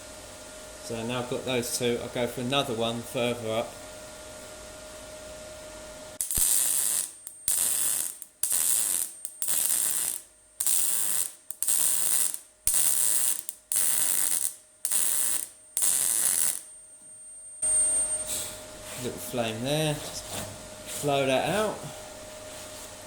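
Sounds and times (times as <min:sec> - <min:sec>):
welding arc crackling hiss: 0:06.2 - 0:16.7, 0:20.8 - 0:22.0.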